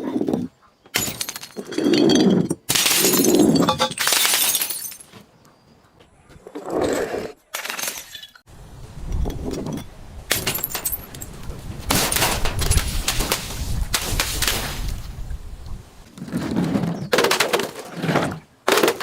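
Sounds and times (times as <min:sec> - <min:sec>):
glass bottle breaking: 0:01.0 - 0:01.7, 0:02.6 - 0:05.1, 0:10.3 - 0:11.1
glass crunching and crackling: 0:02.6 - 0:05.1, 0:10.3 - 0:13.3.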